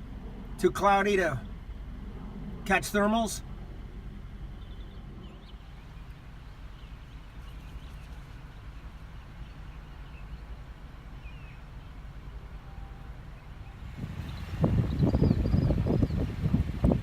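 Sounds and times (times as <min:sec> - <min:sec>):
low rumble: 0:00.0 - 0:09.7.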